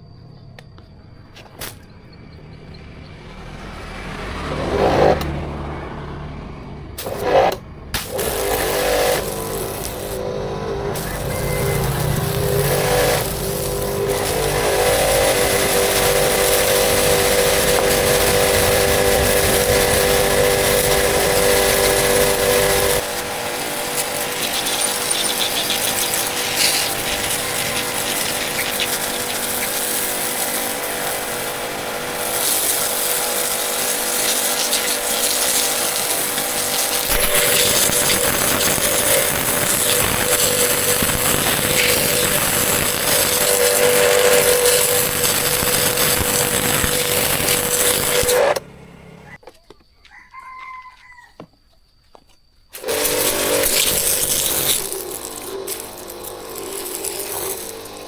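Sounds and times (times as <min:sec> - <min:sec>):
motorcycle engine running: 0:48.4 - 0:49.4.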